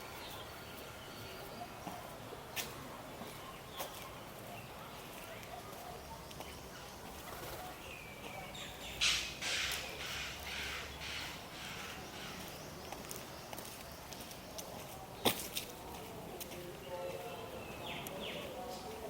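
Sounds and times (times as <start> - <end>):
crow cawing: 9.0 - 12.4.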